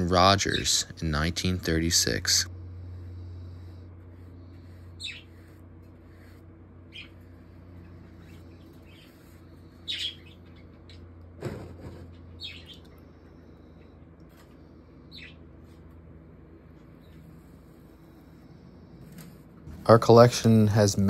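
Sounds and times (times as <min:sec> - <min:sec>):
steady low hum: 0:00.0 - 0:21.0
bird chirps: 0:05.0 - 0:05.4, 0:06.9 - 0:07.2, 0:08.2 - 0:11.1, 0:12.4 - 0:13.0, 0:15.1 - 0:15.5.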